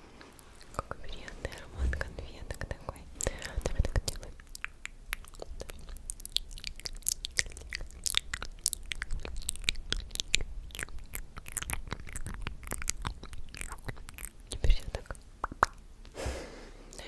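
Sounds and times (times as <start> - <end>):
wet mouth clicks and lip smacks: 3.2 - 16.2.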